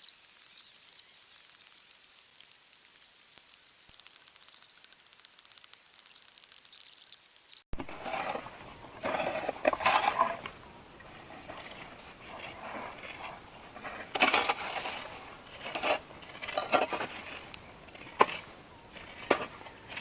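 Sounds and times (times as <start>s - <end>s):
sharp ticks: 0.0s - 7.6s
tool scraping hard surface: 7.8s - 20.0s.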